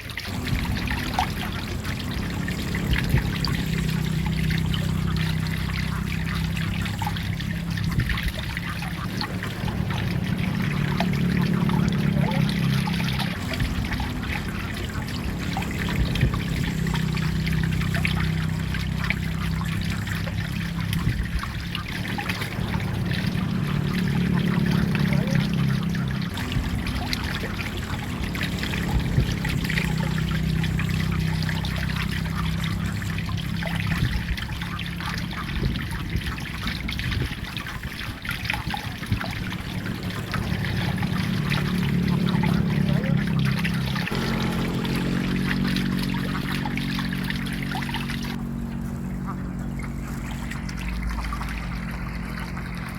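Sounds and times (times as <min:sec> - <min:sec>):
low hum: 0:00.0 - 0:52.9
water trickling and splashing: 0:00.0 - 0:52.9.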